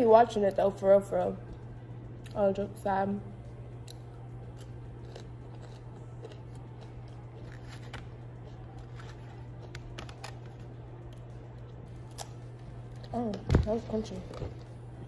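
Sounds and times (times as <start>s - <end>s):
steady low hum: 0.0s - 15.0s
person chewing crunchy food: 3.8s - 13.1s.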